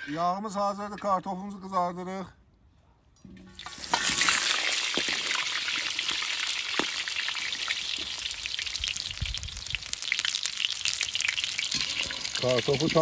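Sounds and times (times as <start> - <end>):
potatoes frying in fat: 3.6 - 13.0.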